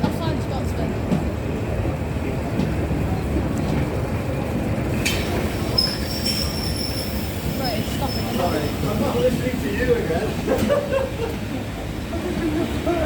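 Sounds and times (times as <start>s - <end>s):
train rumbling: 0.0s - 13.0s
high brake squeal: 5.1s - 9.3s.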